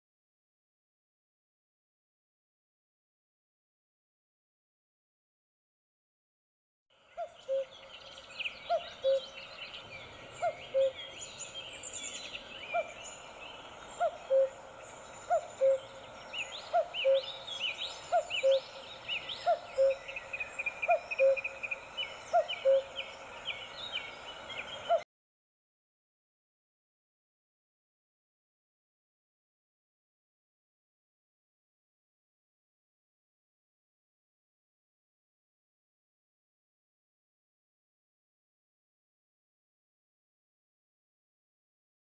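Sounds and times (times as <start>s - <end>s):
birds chirping and twittering: 7.0s - 25.0s
bird two-note hoot: 7.2s - 7.7s, 8.7s - 9.2s, 10.4s - 11.0s, 14.0s - 14.6s, 15.3s - 15.9s, 16.7s - 17.3s, 18.1s - 18.6s, 19.4s - 20.0s, 20.8s - 21.5s, 22.3s - 22.9s.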